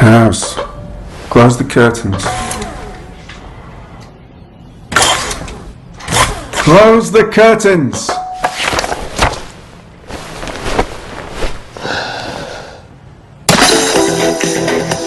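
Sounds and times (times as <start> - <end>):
music: 13.5 - 15.0.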